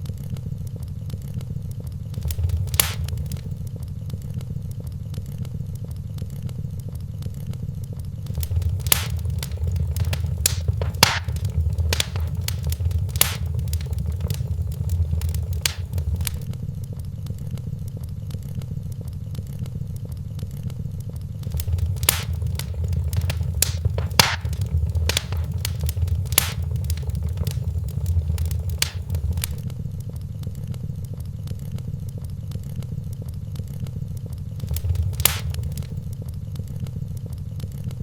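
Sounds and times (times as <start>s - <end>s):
wood fire crackling: 2.2s - 3.6s, 8.2s - 16.5s, 21.4s - 29.6s, 34.6s - 36.2s.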